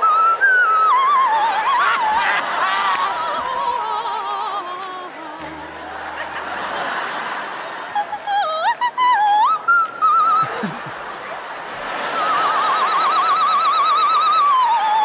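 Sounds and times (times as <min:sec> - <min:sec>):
woman singing with vibrato: 0:00.0 - 0:10.5, 0:12.4 - 0:15.0
audience laughing: 0:01.4 - 0:09.0, 0:10.0 - 0:13.6
backing track music: 0:05.4 - 0:07.9.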